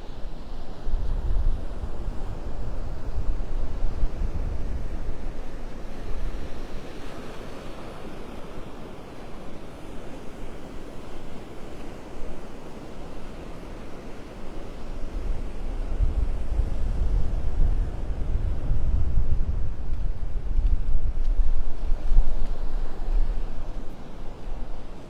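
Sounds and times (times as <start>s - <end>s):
waves washing onto beach: 0.0s - 25.0s
wind buffeting microphone: 0.3s - 7.1s, 14.9s - 25.0s.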